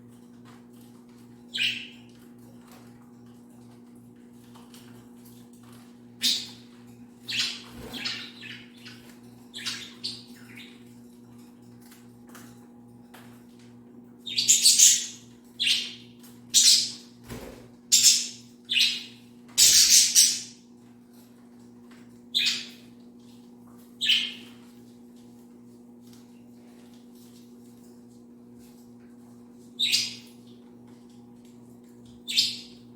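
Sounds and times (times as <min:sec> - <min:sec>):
birds splashing and fluttering: 0:00.3 - 0:13.7, 0:16.1 - 0:18.2
bird chirps: 0:01.5 - 0:02.0, 0:07.2 - 0:10.8, 0:14.2 - 0:16.0, 0:16.6 - 0:17.0, 0:17.9 - 0:20.5, 0:22.3 - 0:22.8, 0:24.0 - 0:24.5, 0:29.8 - 0:30.3, 0:32.2 - 0:32.8.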